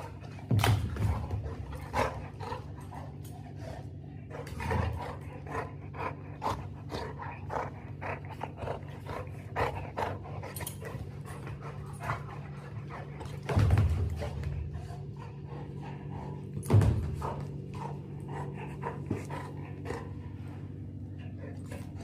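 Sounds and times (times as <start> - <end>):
dog panting: 0.0 - 22.0
steady low hum: 0.0 - 22.0.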